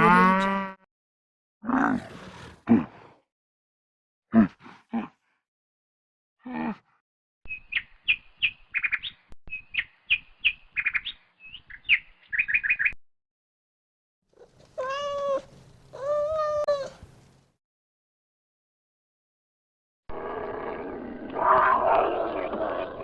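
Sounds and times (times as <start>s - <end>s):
long pitched animal calls: 14.8s - 17.0s.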